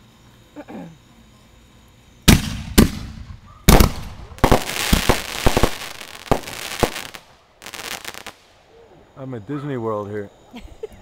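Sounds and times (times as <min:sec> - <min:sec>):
fireworks crackling and pops: 0:02.2 - 0:08.7
fireworks bangs: 0:02.3 - 0:08.6.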